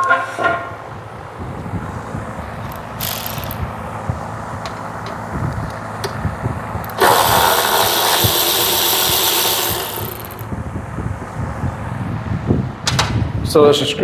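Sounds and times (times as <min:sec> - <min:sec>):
power tool spinning: 0:02.7 - 0:03.6, 0:06.8 - 0:10.5.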